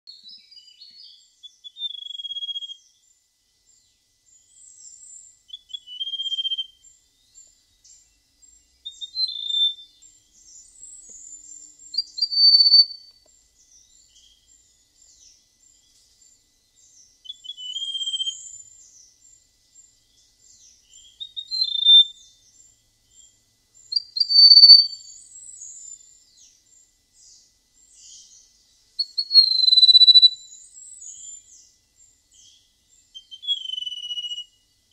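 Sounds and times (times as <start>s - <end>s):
songbird whistling: 0.1s - 3.0s, 4.5s - 6.9s, 8.8s - 10.0s, 10.6s - 13.2s, 17.2s - 18.9s, 20.9s - 22.4s, 23.8s - 26.0s, 29.0s - 31.6s, 32.4s - 34.6s.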